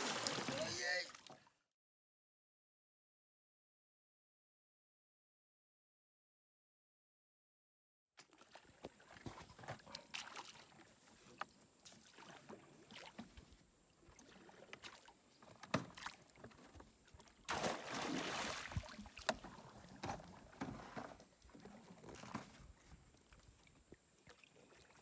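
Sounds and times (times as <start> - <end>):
water splashing: 0.0 - 1.4, 17.5 - 19.7
faint water noise: 0.0 - 1.5, 8.2 - 25.0.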